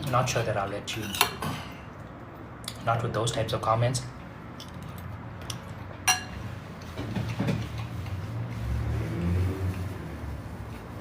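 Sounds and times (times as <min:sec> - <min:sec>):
muffled eating sounds: 0:04.1 - 0:10.0
utensil clinking against dish: 0:06.0 - 0:06.4.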